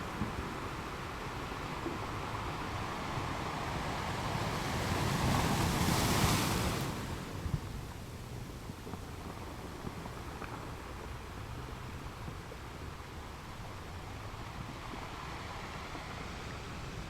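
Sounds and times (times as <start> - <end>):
ocean waves breaking on a beach: 0.0 - 7.8.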